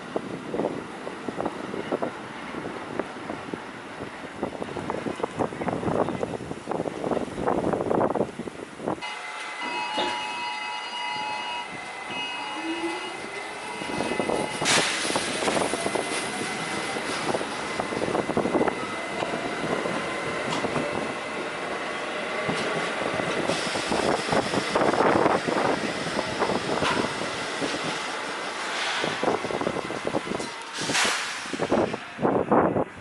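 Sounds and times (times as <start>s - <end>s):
train motor whine: 9.0s - 32.2s
train wheels clattering on rails: 13.8s - 21.0s, 22.4s - 32.0s.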